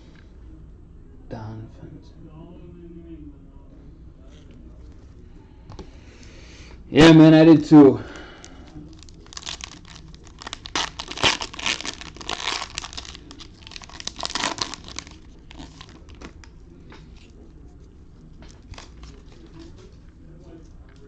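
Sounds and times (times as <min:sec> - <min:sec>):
plastic wrapper crinkling: 0:08.7 - 0:17.4, 0:18.5 - 0:19.7.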